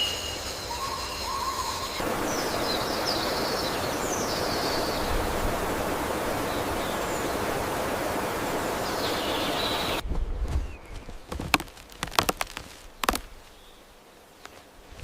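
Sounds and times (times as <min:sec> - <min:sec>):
faint high bird calls: 0:00.0 - 0:10.0
running water rushing: 0:01.9 - 0:10.0, 0:11.0 - 0:15.0.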